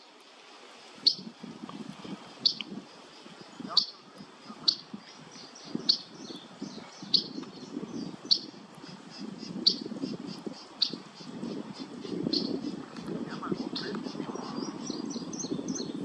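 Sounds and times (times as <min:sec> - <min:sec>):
faint bird chirps: 0:01.0 - 0:01.3, 0:02.4 - 0:12.9.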